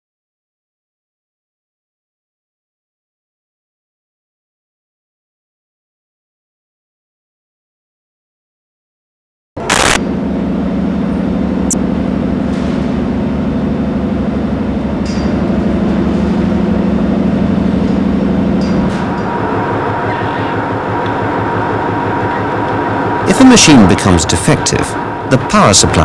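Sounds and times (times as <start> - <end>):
engine room machinery throbbing: 9.6 - 26.0
steady whine: 9.6 - 26.0.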